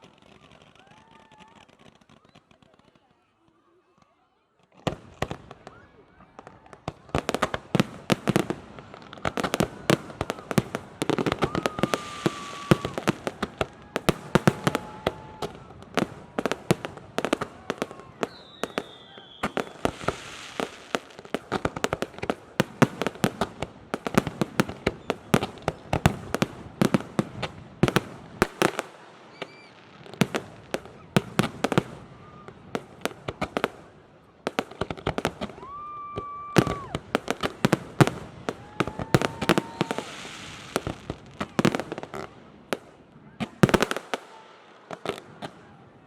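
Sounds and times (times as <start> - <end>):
fireworks bangs and crackles: 0.0 - 3.6, 4.6 - 46.0
firework whistles: 11.2 - 15.8, 18.1 - 20.9, 29.3 - 29.8, 38.6 - 40.9.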